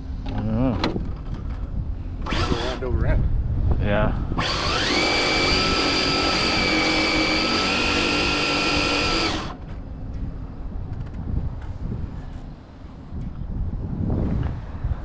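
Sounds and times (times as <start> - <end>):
electric motor whining: 2.2 - 2.9, 4.4 - 9.6.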